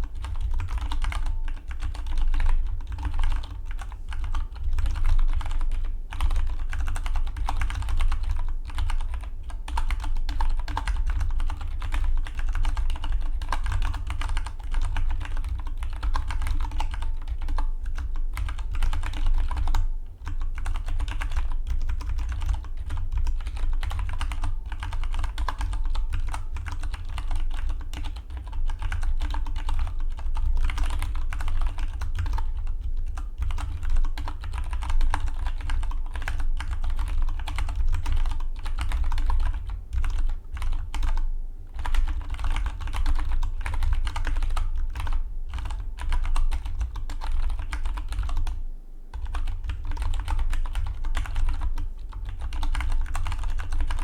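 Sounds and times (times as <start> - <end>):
keyboard typing clicks: 41.8 - 54.0.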